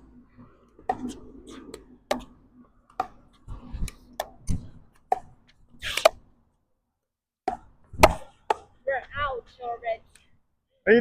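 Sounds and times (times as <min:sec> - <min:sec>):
ball bouncing: 0:00.8 - 0:03.4, 0:04.1 - 0:06.2
wind rumbling on microphone: 0:03.4 - 0:04.9.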